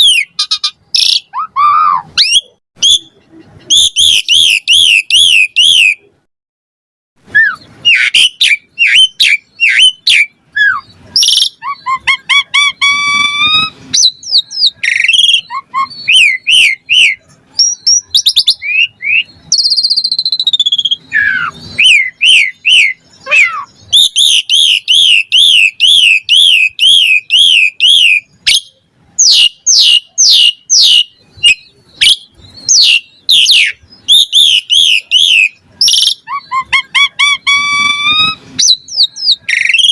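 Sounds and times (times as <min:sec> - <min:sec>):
starling singing whistles and chirps: 0:00.0 - 0:06.0, 0:07.3 - 0:39.9.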